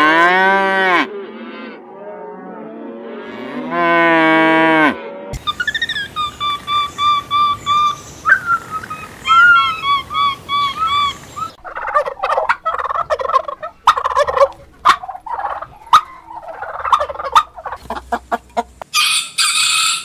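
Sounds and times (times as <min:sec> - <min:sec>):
turkey gobbling: 0:05.4 - 0:20.0
turkeys calling: 0:05.4 - 0:20.0.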